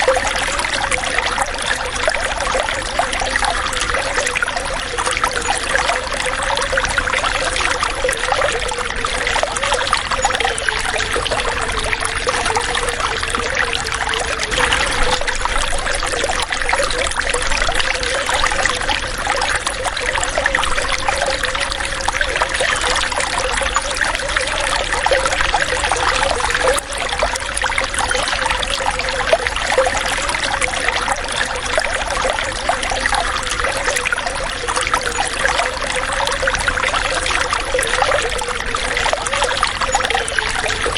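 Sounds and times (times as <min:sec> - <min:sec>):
faint wavering tone: 0:00.0 - 0:29.8
water trickling and splashing: 0:00.0 - 0:40.9.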